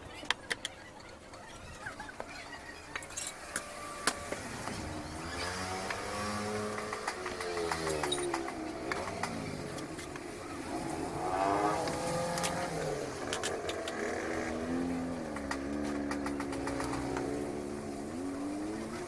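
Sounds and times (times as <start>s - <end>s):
vehicle engines running: 0.0s - 19.0s
small clicks: 15.3s - 17.4s.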